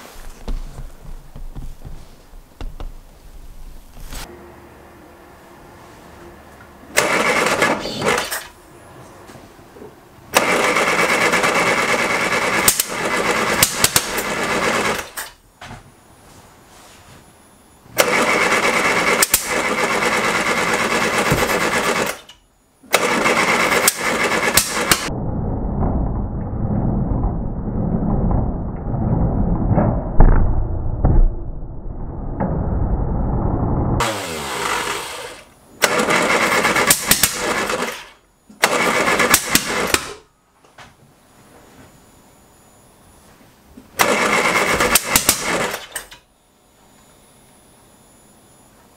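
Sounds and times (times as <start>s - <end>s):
engine cranking on starter: 6.9s - 8.5s, 10.3s - 15.3s, 18.0s - 22.3s, 22.9s - 25.1s, 34.0s - 40.2s, 44.0s - 46.1s
backfire pop: 29.7s - 32.8s.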